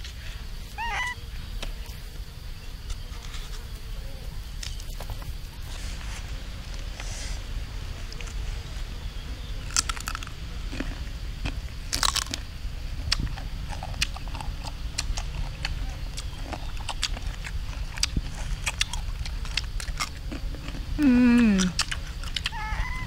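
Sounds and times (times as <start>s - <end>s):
crunchy fruit being chewed: 8.0s - 23.0s
mouth clicks: 13.1s - 23.0s.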